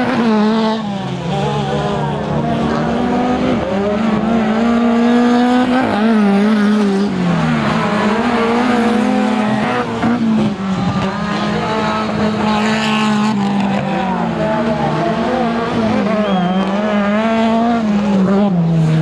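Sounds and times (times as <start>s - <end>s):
race car engines running hard: 0.0s - 19.0s.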